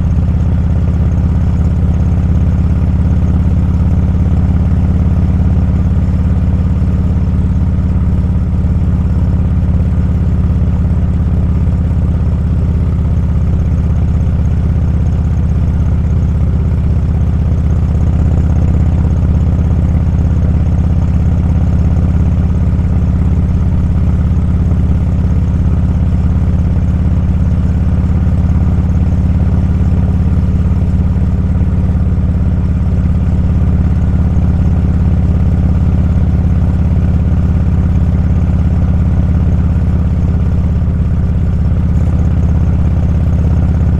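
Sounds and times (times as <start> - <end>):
motorcycle engine droning: 0.0 - 43.9.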